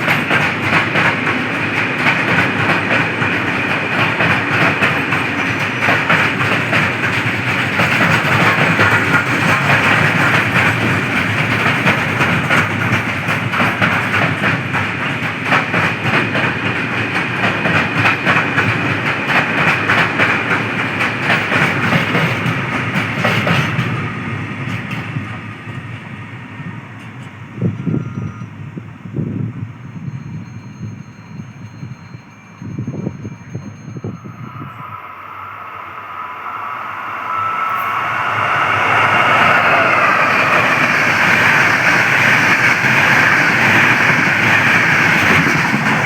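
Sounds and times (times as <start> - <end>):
wheels clicking over rail joints: 0.0 - 25.4, 39.0 - 46.0
train passing at speed: 0.0 - 46.0.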